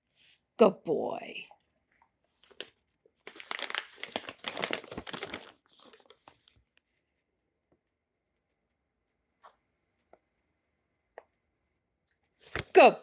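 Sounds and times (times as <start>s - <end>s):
plastic bag crinkling: 2.4s - 6.5s.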